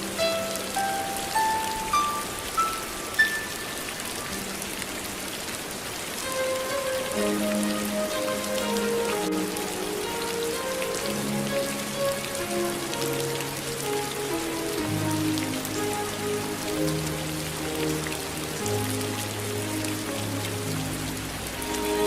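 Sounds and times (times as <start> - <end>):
steady rain: 0.0 - 22.0
slow instrumental hymn: 6.2 - 22.0.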